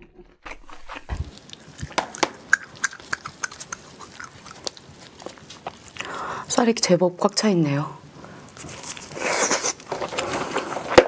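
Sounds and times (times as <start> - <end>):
shell clicks and crackles: 0.5 - 6.1
wet chewing and mouth smacks: 0.5 - 6.2.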